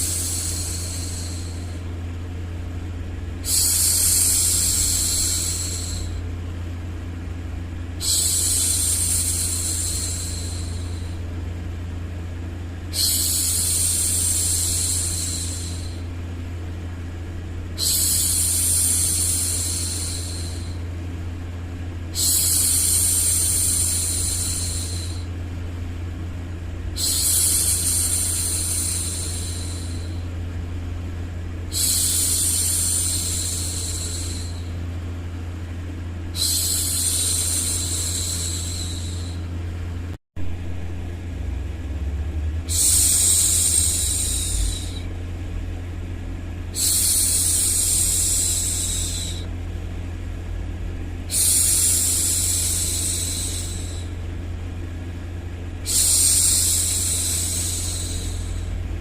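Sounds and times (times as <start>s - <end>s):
low white-noise rumble: 0.0s - 59.0s.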